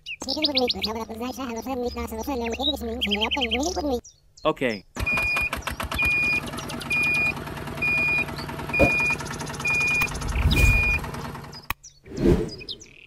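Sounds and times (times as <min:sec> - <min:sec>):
high reversing beeper: 0:08.8 - 0:11.0.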